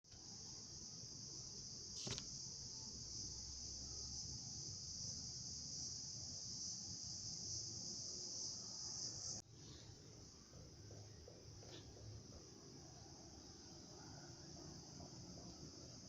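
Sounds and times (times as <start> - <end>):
crickets trilling: 0.2 - 16.0.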